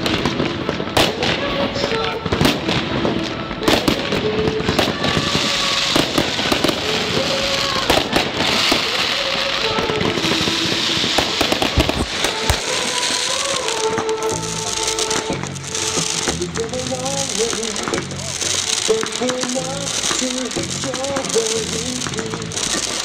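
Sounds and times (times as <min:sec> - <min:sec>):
dense firework crackling: 0:00.0 - 0:23.0
firework shells bursting: 0:00.0 - 0:23.0
music playing: 0:00.0 - 0:23.0.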